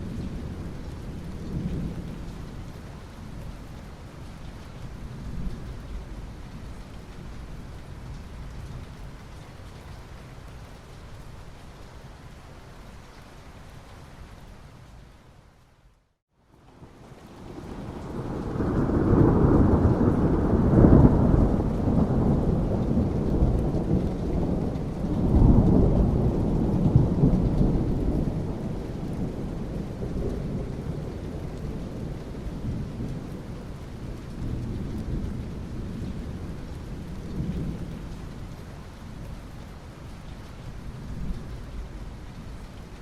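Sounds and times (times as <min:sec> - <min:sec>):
steady rain: 0:00.0 - 0:43.0
rolling thunder: 0:16.9 - 0:38.2.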